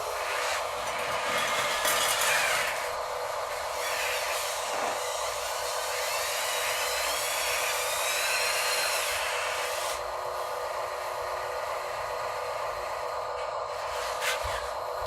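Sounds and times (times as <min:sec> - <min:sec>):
electric motor whine: 0:00.0 - 0:15.0.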